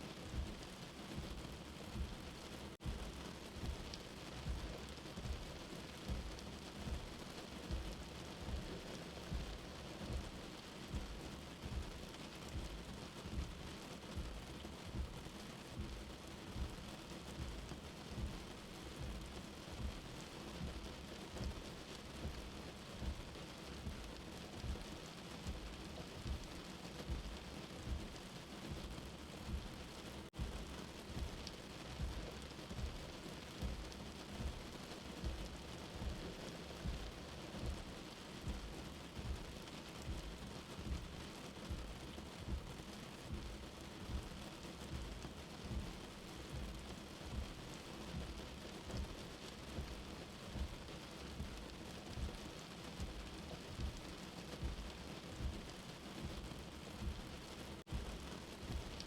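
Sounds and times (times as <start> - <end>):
steady rain: 0.0 - 59.0
low heartbeat thump: 0.3 - 52.4, 53.0 - 59.0.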